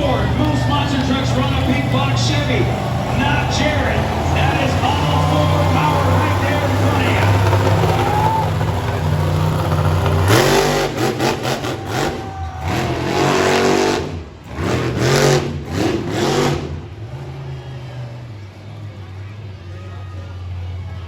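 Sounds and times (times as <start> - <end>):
truck engine idling and revving: 0.0 - 21.0.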